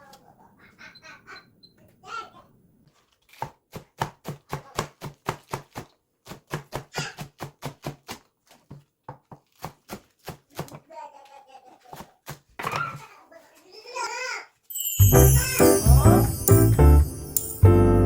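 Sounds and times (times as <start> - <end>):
knife chopping on cutting board: 3.3 - 10.8.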